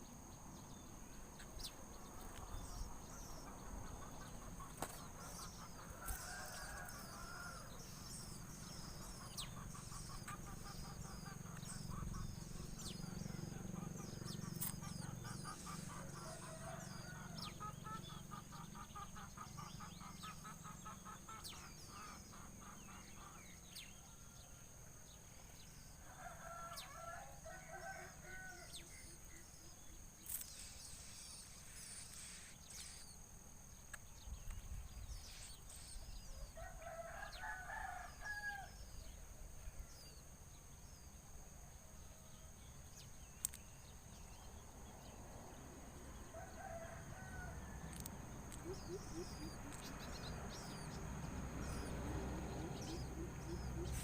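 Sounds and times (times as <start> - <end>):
rooster crowing: 5.9 - 7.7, 26.1 - 28.8, 36.6 - 38.8, 46.2 - 48.0.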